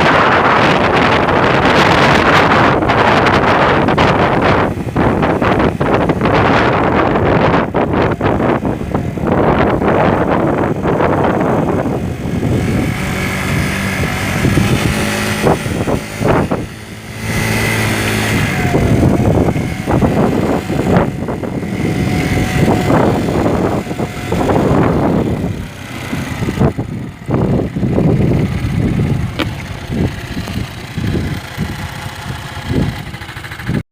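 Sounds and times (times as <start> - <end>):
motorcycle engine running: 0.0 - 33.8
wind noise on microphone: 0.0 - 33.8.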